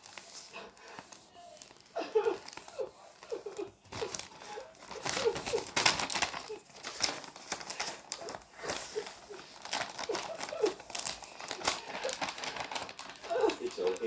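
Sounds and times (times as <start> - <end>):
crinkling and rustling: 0.0 - 14.0.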